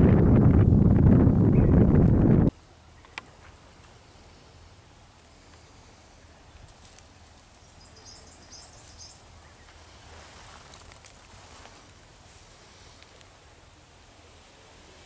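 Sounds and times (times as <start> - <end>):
faint clicks: 3.0 - 4.0, 13.0 - 13.4
small bird singing: 7.6 - 9.7.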